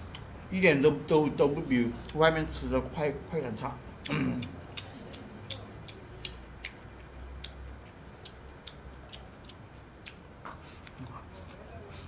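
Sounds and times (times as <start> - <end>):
faint low hum: 0.0 - 12.0
eating clicks: 3.6 - 11.6.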